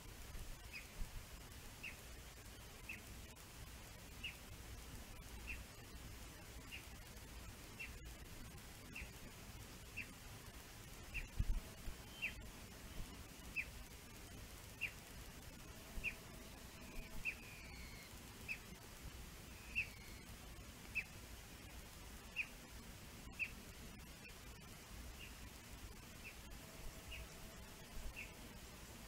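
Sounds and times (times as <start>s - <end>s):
bird whistling call: 16.9s - 18.1s, 19.6s - 20.2s.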